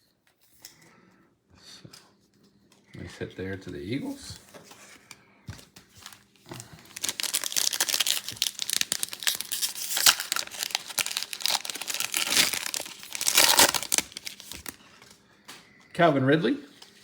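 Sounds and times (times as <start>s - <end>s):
wrapper tearing and crinkling: 6.0s - 14.8s.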